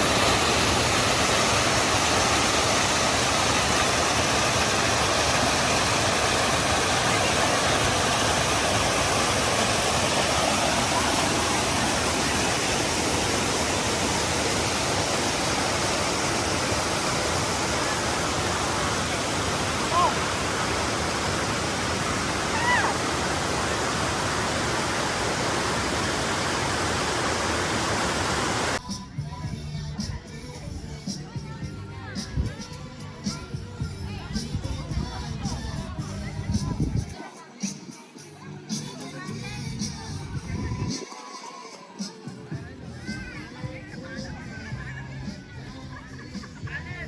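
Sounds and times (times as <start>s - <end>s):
steady rushing noise: 0.0s - 28.8s.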